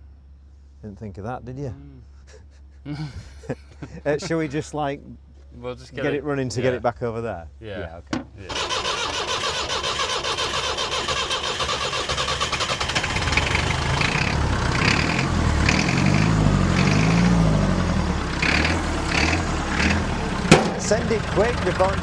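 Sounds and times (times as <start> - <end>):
diesel engine running: 8.2 - 22.0
starter motor cranking: 8.2 - 22.0.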